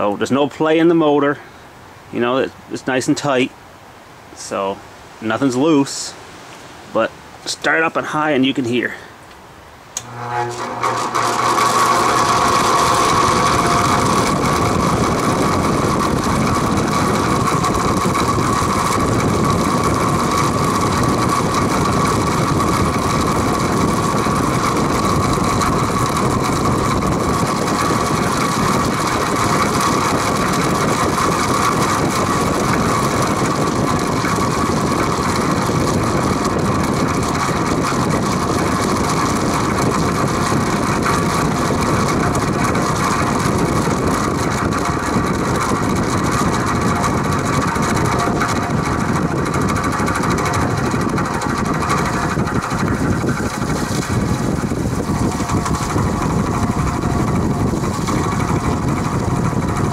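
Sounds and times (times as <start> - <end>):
box fan humming and rattling: 0.0 - 59.9.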